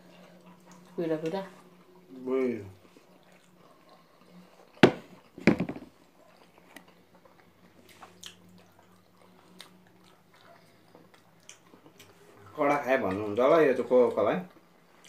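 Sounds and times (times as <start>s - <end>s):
person chewing food: 2.8s - 13.2s
sharp knock: 4.8s - 5.8s.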